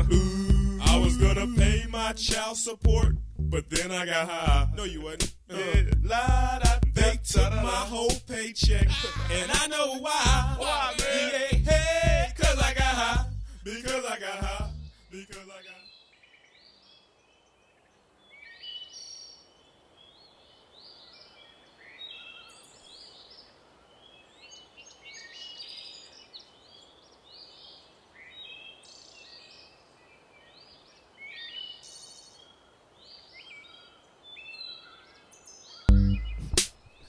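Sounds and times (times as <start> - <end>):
faint outdoor hiss: 0.0 - 37.0
birds chirping and whistling: 33.7 - 37.0.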